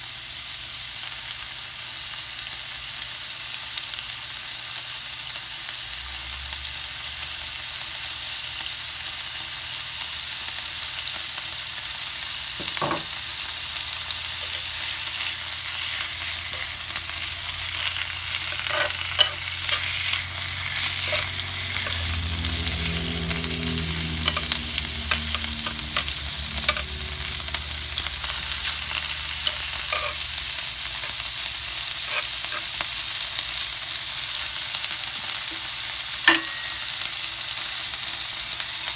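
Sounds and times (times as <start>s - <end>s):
meat and onion sizzling on grill: 0.0s - 38.9s
metal tongs clicking and scraping: 18.5s - 22.1s, 24.2s - 27.2s, 27.9s - 30.3s.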